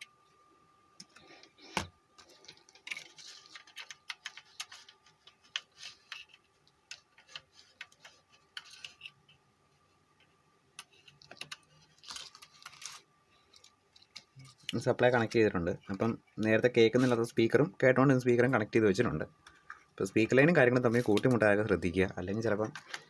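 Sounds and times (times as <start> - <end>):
faint clicks taps and scrapes: 1.0 - 14.8, 19.4 - 20.0, 22.4 - 23.0.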